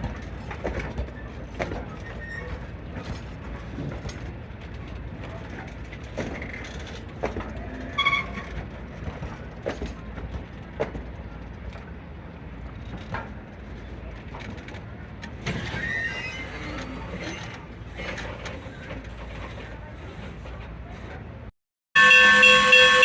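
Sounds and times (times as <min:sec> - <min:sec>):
railway equipment rumbling: 0:00.0 - 0:23.0
short metallic squeal: 0:07.8 - 0:08.5, 0:15.5 - 0:18.3.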